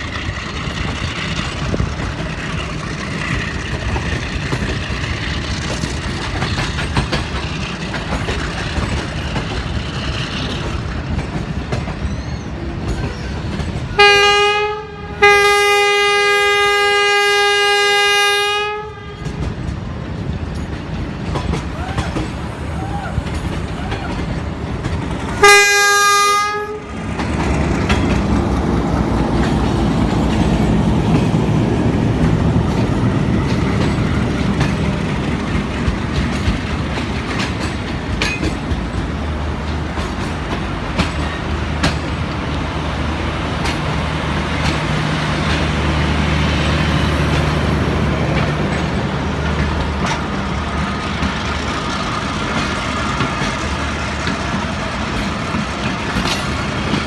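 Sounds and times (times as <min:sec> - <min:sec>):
wheels clicking over rail joints: 0:00.0 - 0:14.3, 0:19.2 - 0:57.0
passing train rumbling: 0:00.0 - 0:57.0
train horn blast: 0:14.0 - 0:19.5, 0:25.3 - 0:27.0.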